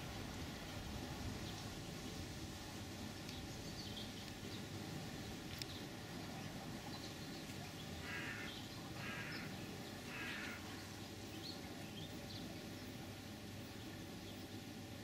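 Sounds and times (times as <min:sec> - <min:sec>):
outdoor background noise: 0:00.0 - 0:15.0
bird harsh calls: 0:07.8 - 0:12.1.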